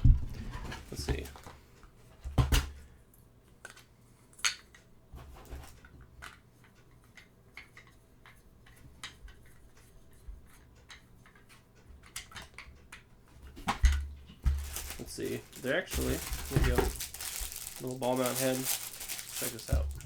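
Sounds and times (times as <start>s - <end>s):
plastic parts clicking: 13.6s - 20.0s.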